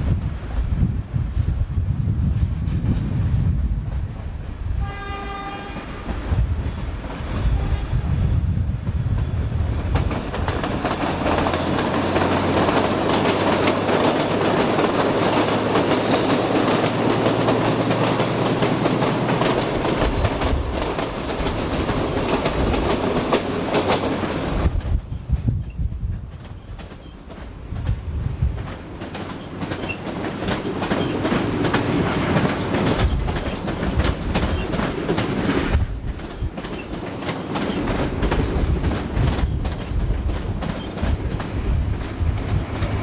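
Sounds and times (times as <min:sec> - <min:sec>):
train horn blast: 0:04.8 - 0:06.2, 0:07.5 - 0:08.2
train wheels clattering over rails: 0:05.6 - 0:25.0, 0:26.1 - 0:43.0.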